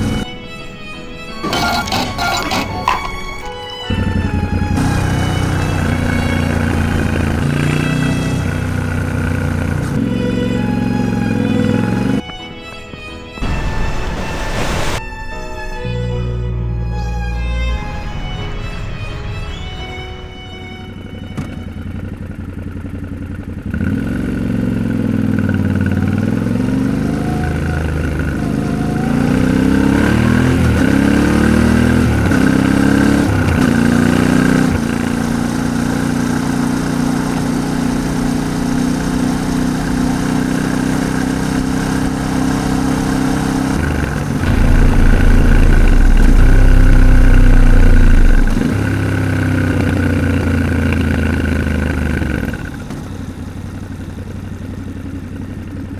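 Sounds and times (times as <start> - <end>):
motorcycle engine shifting gears: 0.0 - 0.3, 1.4 - 13.3, 20.6 - 55.9
low rumble: 13.4 - 22.6, 44.4 - 49.7.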